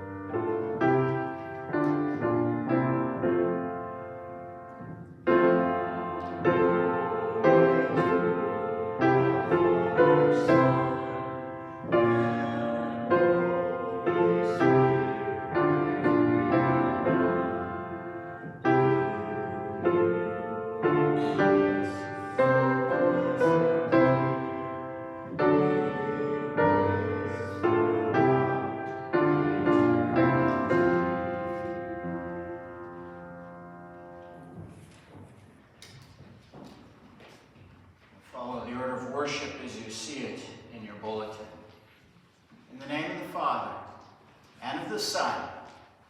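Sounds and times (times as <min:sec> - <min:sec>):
piano playing hymn chords: 0:00.0 - 0:34.9.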